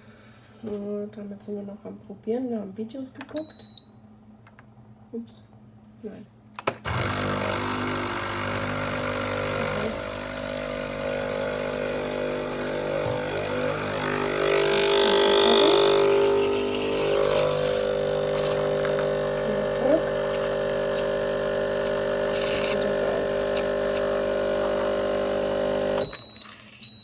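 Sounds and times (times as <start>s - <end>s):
espresso machine hum: 6.9s - 26.8s.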